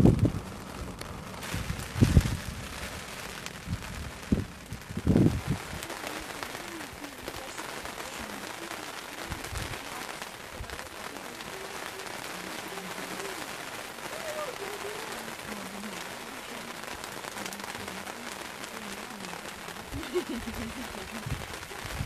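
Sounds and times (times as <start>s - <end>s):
dull low thumps: 0.0s - 5.9s
rain falling: 0.0s - 22.0s.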